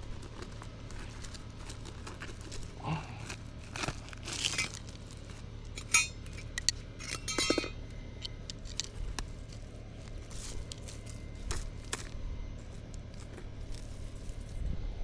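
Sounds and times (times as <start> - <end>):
rustling: 0.0 - 6.6, 8.6 - 14.7
light metallic clinks: 5.8 - 8.3.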